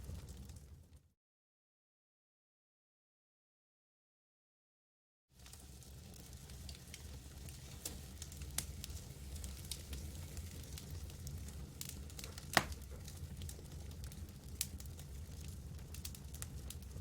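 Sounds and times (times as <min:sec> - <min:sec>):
campfire crackling: 0:05.4 - 0:17.0.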